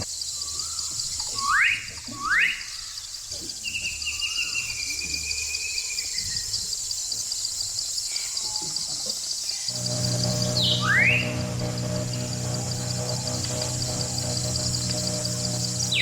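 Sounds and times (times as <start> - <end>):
insects chorus: 0.0 - 16.0
bird whistling calls: 0.6 - 2.9.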